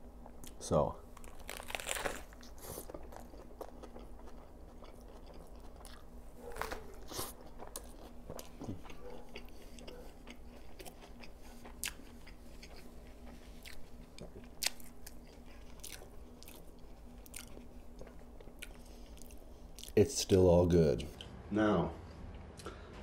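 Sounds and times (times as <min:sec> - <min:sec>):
biting into burger: 0:01.2 - 0:20.0
wet chewing with crisp clicks: 0:02.4 - 0:20.0.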